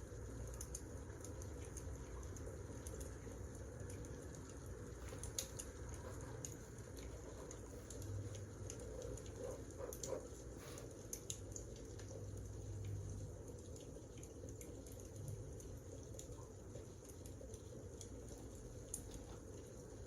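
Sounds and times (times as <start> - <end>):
low rumble of burning logs: 0.0 - 20.0
wood fire crackling: 0.1 - 12.2.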